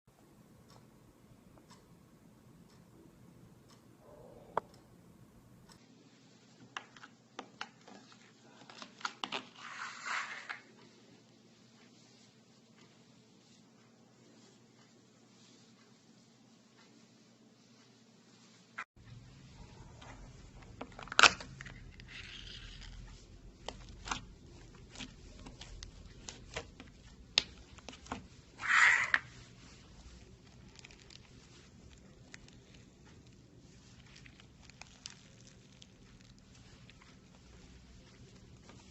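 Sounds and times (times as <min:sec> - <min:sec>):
squishy rustle of slime: 0:19.9 - 0:38.9.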